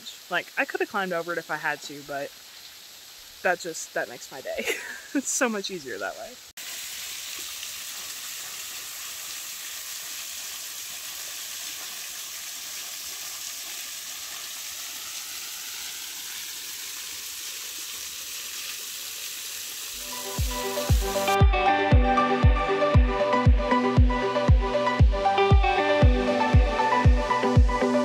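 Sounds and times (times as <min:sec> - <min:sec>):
small waterfall splashing on rocks: 0:00.0 - 0:21.3
music with a thumping beat: 0:20.3 - 0:28.0.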